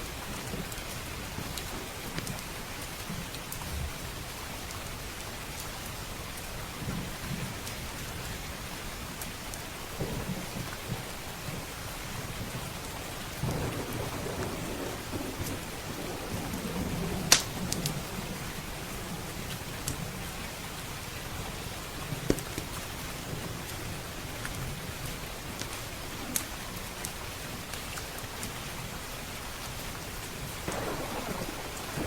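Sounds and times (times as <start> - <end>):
steady rain: 0.0 - 32.0
thunder rumbling: 10.0 - 20.3, 30.6 - 32.0
wood fire crackling: 10.3 - 20.3, 30.2 - 32.0.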